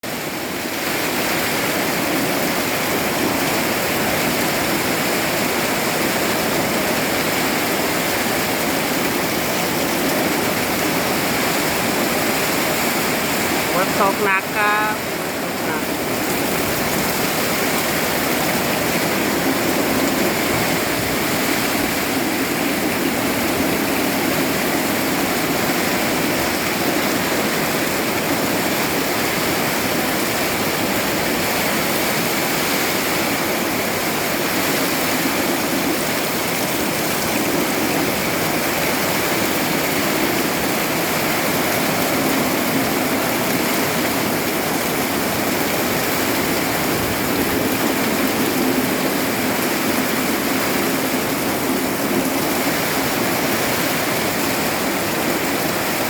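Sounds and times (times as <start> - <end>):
heavy rain falling: 0.0 - 56.0
strong wind: 14.8 - 56.0.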